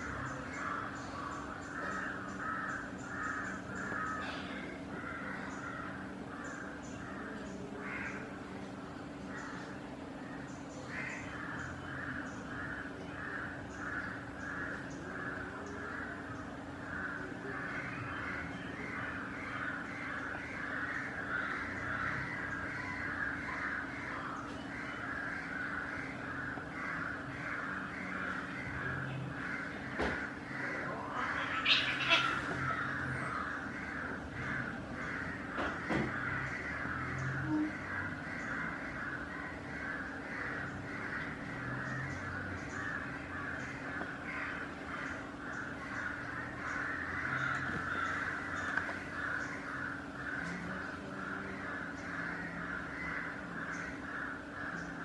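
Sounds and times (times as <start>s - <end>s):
bird calling harshly: 30.6s - 35.4s.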